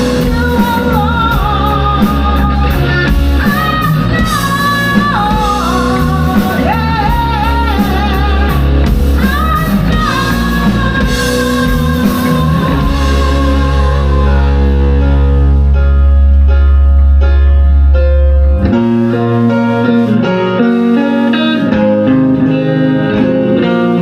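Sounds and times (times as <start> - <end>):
drum kit: 0.0 - 24.0
lead melody line: 0.0 - 24.0
live rock band playing: 0.0 - 24.0.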